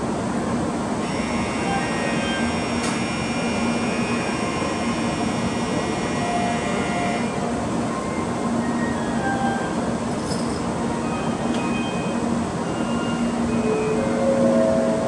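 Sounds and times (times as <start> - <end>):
train humming: 0.0 - 15.0
high-pitched multi-tone whine: 1.0 - 10.4.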